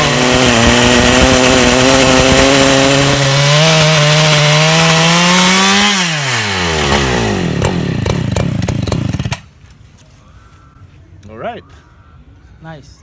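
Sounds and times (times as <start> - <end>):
chainsaw mill cutting log: 0.0 - 9.5.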